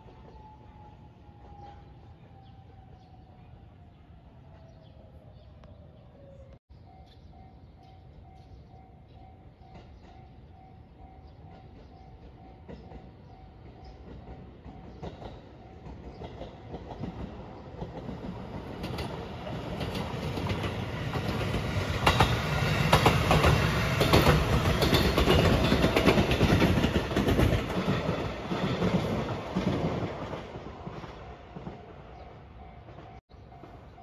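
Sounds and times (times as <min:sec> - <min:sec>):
electric train passing: 0:06.2 - 0:34.0
wheels clacking over rail joints: 0:11.4 - 0:33.8.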